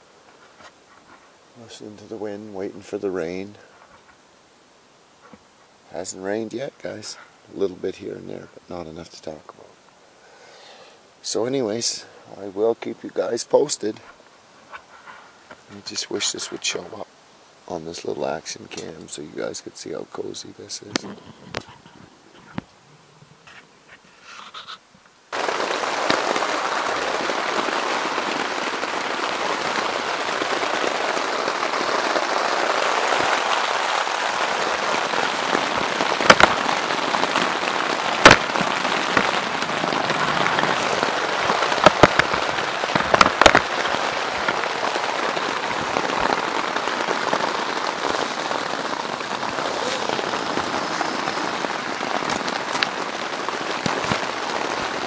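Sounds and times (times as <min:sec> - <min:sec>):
rain pattering on tent fabric: 0:00.0 - 0:22.8, 0:24.8 - 0:55.0
loud drops smacking tent: 0:35.7 - 0:37.3, 0:38.1 - 0:44.6.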